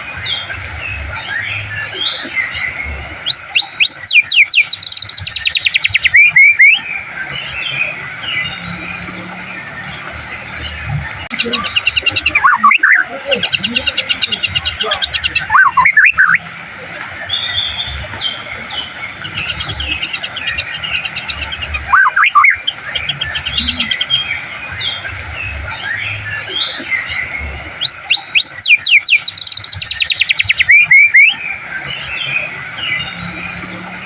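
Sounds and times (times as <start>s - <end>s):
soft bird twittering: 0.0s - 34.0s
bird fast trill: 1.2s - 16.5s, 17.2s - 34.0s
bird whistled notes: 11.4s - 16.4s, 21.6s - 22.7s, 27.8s - 31.4s.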